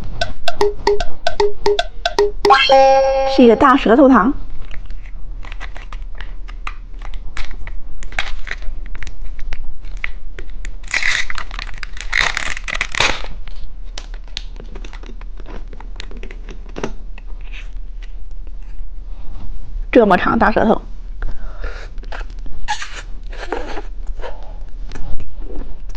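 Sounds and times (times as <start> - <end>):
plastic wrapper crinkling and tearing: 4.6 - 17.7.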